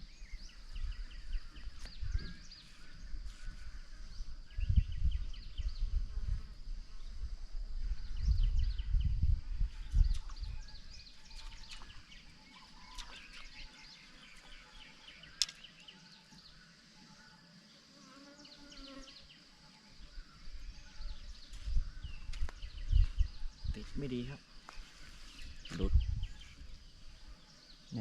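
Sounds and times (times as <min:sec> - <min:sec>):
low rumble on microphone: 0:00.0 - 0:12.2, 0:20.2 - 0:24.4, 0:25.0 - 0:27.4
sharp click: 0:15.4 - 0:15.6.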